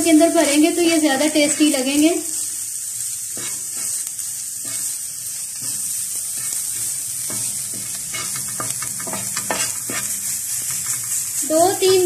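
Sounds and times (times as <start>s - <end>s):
food sizzling in hot oil: 0.0s - 12.0s
spatula scraping a griddle: 3.0s - 12.0s.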